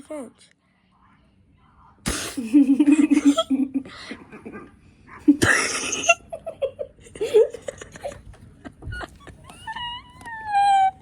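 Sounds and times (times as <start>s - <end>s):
young people laughing: 2.4s - 4.6s, 5.3s - 11.0s.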